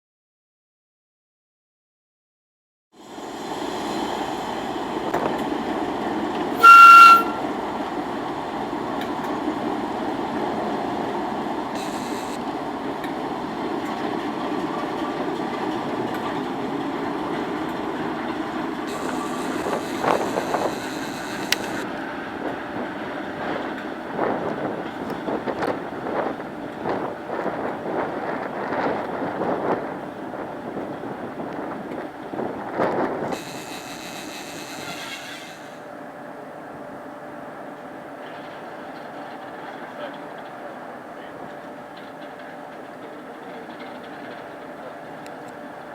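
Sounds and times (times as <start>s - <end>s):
diesel locomotive engine running: 3.0s - 45.9s
loud horn blast: 6.6s - 7.6s.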